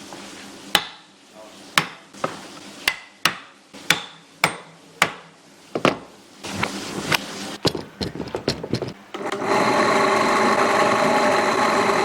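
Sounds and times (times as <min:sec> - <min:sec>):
hammer striking: 0:01.8 - 0:06.0.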